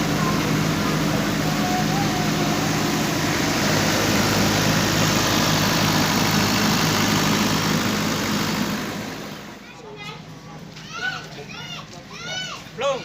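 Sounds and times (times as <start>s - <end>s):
loud rushing noise: 0.0s - 9.6s
heavy engine idling: 0.0s - 13.0s.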